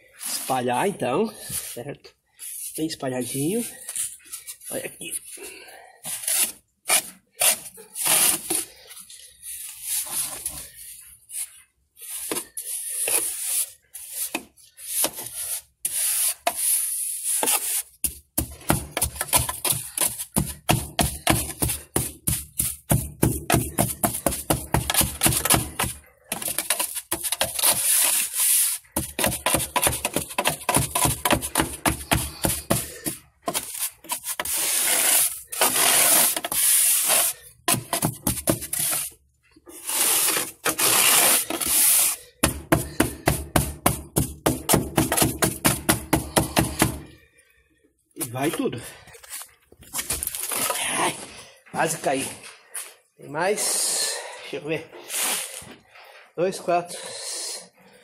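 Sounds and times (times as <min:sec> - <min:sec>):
salt scraping by hand: 0:02.4 - 0:03.4, 0:06.1 - 0:39.1, 0:39.7 - 0:42.9, 0:55.0 - 0:55.7.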